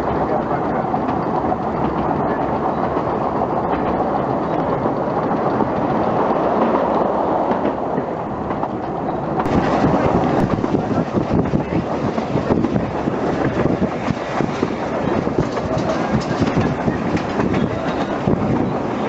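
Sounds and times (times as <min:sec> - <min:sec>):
train wheels rumbling on track: 0:00.0 - 0:19.0
wind on microphone: 0:00.0 - 0:19.0.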